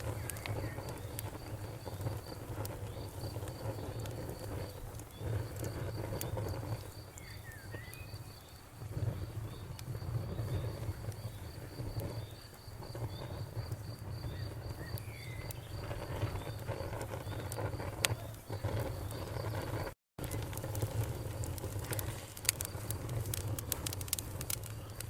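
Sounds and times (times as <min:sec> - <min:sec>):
cricket chirping: 0:00.0 - 0:19.8
campfire crackling and popping: 0:00.0 - 0:25.0
bird calls: 0:07.1 - 0:08.5.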